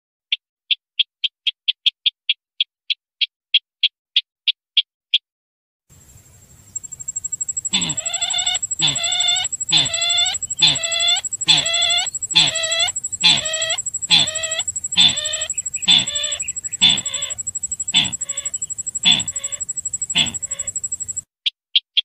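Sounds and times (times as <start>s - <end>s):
bird clucking calls: 6.8s - 21.2s
high-pitched whine: 6.8s - 21.2s.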